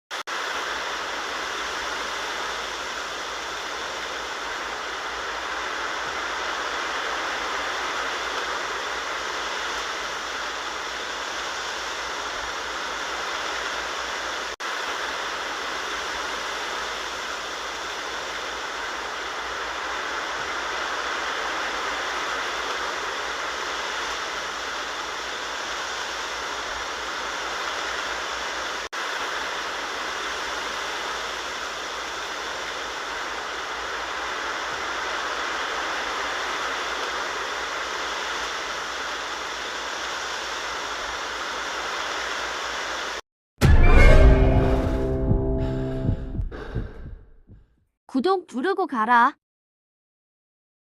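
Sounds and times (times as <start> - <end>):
wind rustling bamboo leaves: 0.3 - 43.2.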